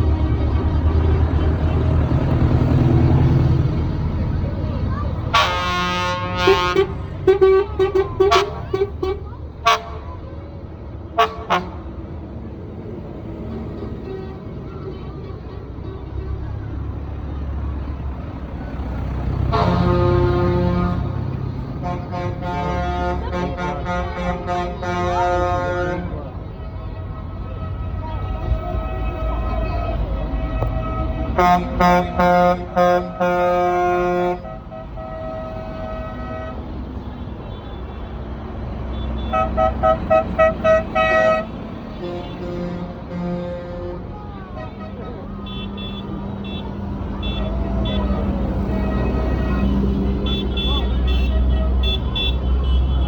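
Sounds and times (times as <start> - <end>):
tractor engines rumbling: 0.0 - 53.0
horn sounding: 5.2 - 10.1, 11.2 - 11.9, 19.3 - 26.4, 27.0 - 53.0.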